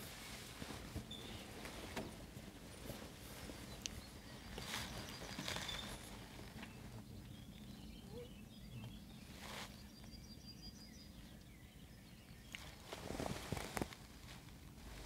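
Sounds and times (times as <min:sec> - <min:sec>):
faint birds singing: 0:00.0 - 0:15.0
brief rustle: 0:12.5 - 0:15.0.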